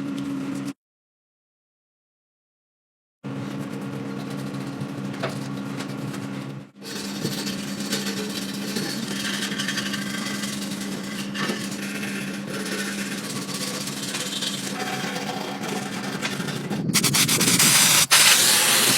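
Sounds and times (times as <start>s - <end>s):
steady motor hum: 3.3s - 18.9s
abrasive rubbing and scraping: 6.8s - 18.9s.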